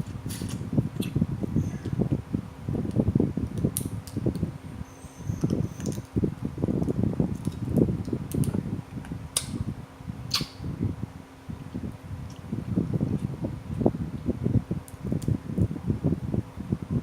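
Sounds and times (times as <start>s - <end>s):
sharp mouth clicks: 9.4s - 9.6s, 10.3s - 10.6s.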